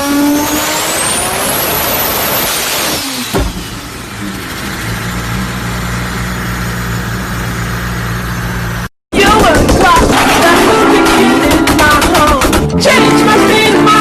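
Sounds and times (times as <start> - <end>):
car engine and exhaust rush: 0.0 - 8.9
car engine idling: 3.2 - 8.9.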